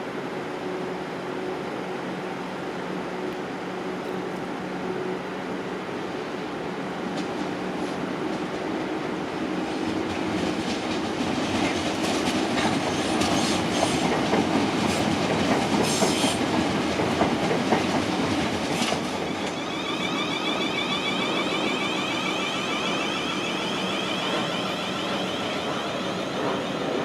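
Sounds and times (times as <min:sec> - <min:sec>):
train wheels clattering over rails: 0:09.7 - 0:27.0.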